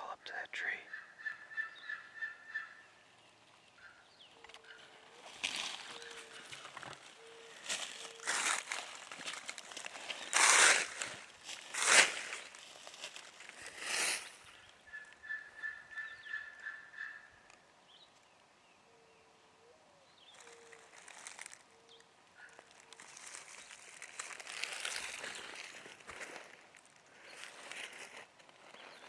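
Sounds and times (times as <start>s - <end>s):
faint bird calls: 0.0s - 11.3s, 12.1s - 26.3s
dry leaves crunching and rustling: 4.8s - 14.6s, 20.4s - 21.6s, 22.6s - 29.0s.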